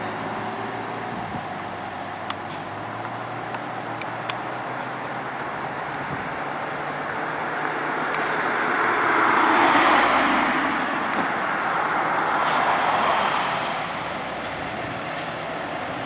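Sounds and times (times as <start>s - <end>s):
vehicle passing by: 7.1s - 16.0s.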